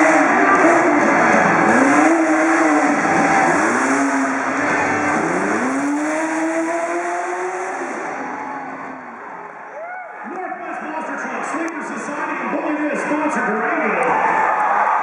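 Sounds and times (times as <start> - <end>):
truck engine revving: 0.0 - 9.7.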